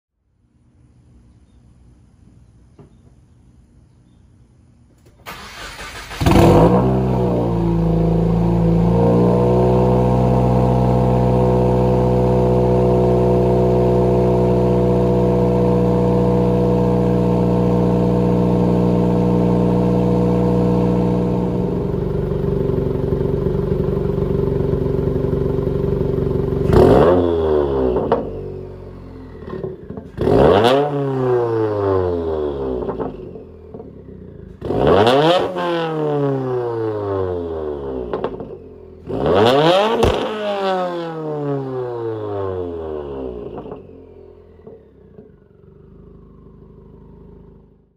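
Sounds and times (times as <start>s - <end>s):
engine revving: 5.2s - 24.7s, 25.5s - 47.9s
car engine idling: 11.3s - 30.4s, 43.0s - 47.9s.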